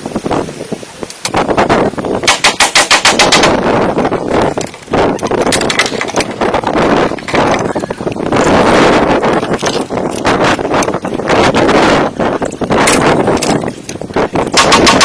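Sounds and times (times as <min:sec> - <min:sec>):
dense rattling noise: 0:01.2 - 0:15.0
fast sharp knocks: 0:02.2 - 0:03.8, 0:14.4 - 0:15.0.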